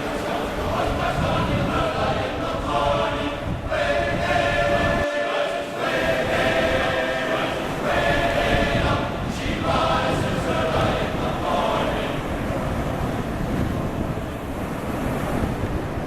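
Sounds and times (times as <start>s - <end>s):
choir singing held chords: 0.0s - 12.8s
steady noisy rush: 0.0s - 16.0s.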